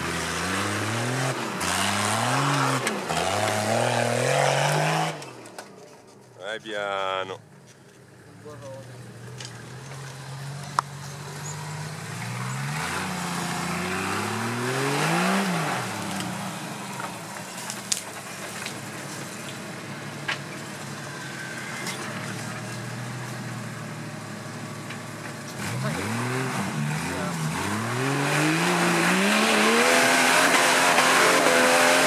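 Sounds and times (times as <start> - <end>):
off-road engine revving: 0.0 - 5.7, 8.2 - 32.0.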